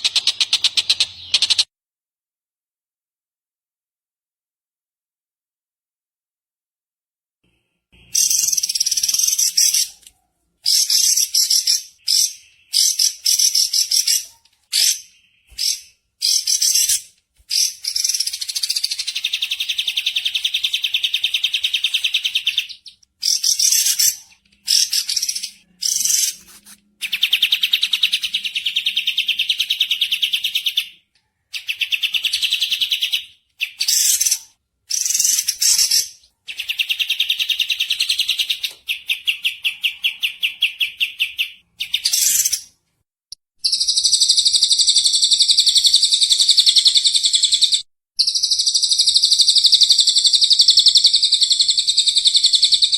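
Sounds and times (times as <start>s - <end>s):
bird chattering trills: 8.1s - 10.0s, 10.7s - 30.6s.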